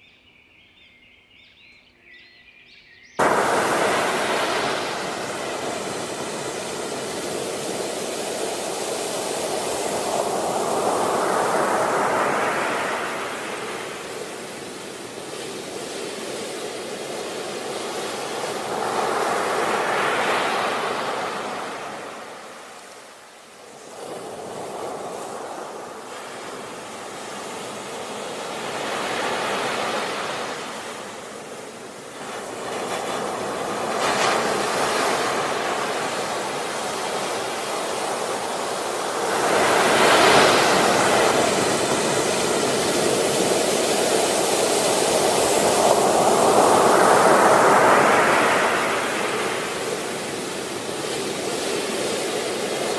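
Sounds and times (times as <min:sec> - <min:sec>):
ocean waves hissing: 0:03.2 - 0:52.9.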